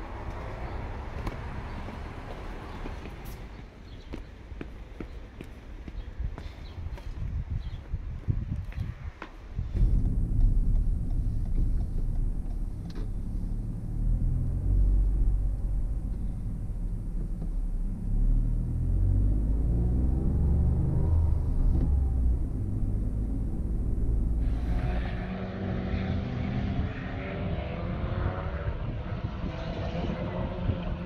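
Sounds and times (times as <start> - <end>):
car engine rumble from cabin: 9.6 - 24.8.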